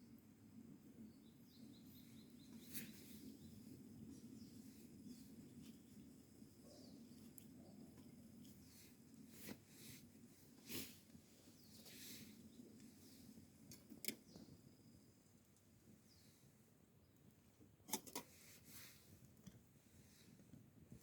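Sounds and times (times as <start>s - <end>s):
faint birdsong chirps: 0.0s - 17.6s.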